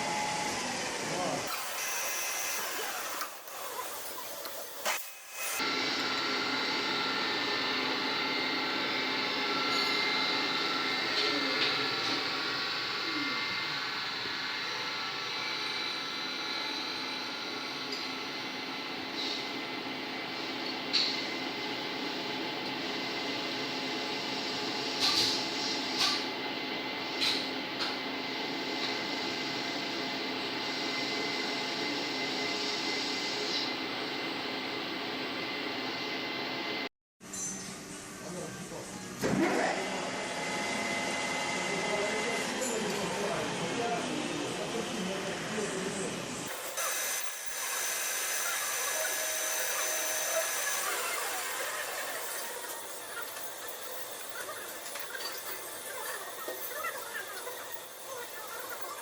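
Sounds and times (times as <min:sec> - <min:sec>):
metalworking machine humming: 0:00.0 - 0:59.0
machine tool cutting metal: 0:01.5 - 0:17.2, 0:46.5 - 0:59.0.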